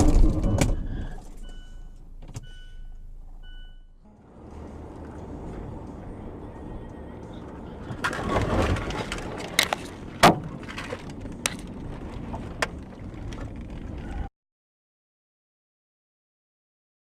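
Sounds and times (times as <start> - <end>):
car collision bangs and knocks: 0.0 - 1.0, 10.2 - 10.9
car road noise: 0.0 - 14.3.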